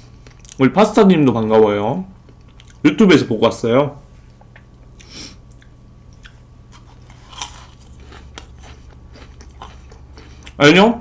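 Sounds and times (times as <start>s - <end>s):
person chewing cake: 0.1s - 0.6s, 2.2s - 2.8s, 4.4s - 10.7s.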